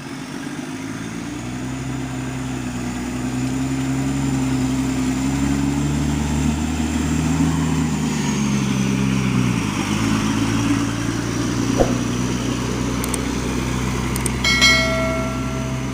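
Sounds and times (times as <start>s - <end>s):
short bright chime: 14.5s - 15.9s.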